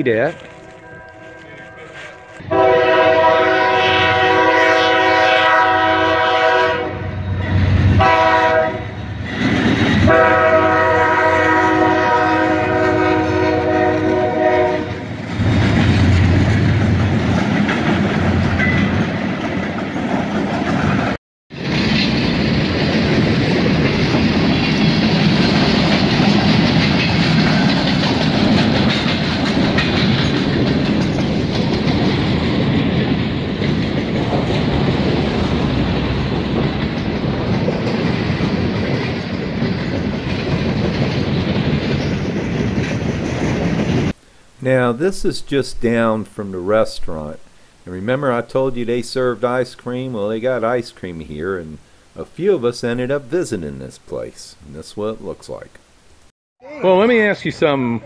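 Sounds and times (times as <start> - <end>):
train air horn blasts: 1.1 - 7.3, 8.0 - 9.0, 10.0 - 15.2
freight cars rumbling over rails: 2.4 - 44.2.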